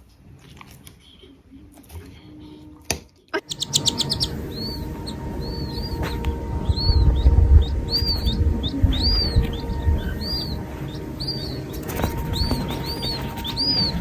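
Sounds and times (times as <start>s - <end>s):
small bird chirping: 3.4s - 14.0s
low rumbling noise: 3.5s - 14.0s.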